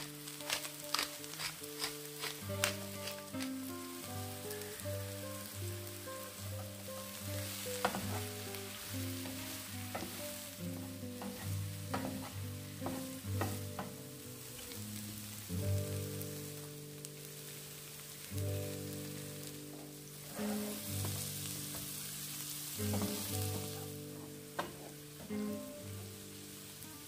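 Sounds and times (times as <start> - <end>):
background music: 0.0 - 27.0
vegetables sizzling in a pan: 0.0 - 27.0
wooden spatula scraping pan: 7.4 - 13.9, 20.2 - 21.9, 22.8 - 25.0.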